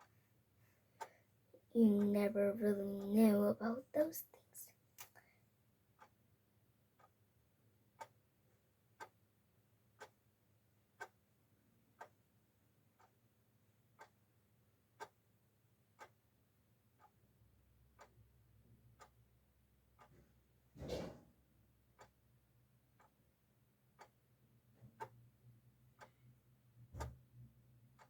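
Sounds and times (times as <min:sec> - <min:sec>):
clock ticking: 0:01.8 - 0:04.3, 0:05.9 - 0:06.2, 0:06.8 - 0:07.2, 0:07.8 - 0:08.2, 0:08.9 - 0:09.2, 0:09.9 - 0:20.4, 0:21.8 - 0:28.0.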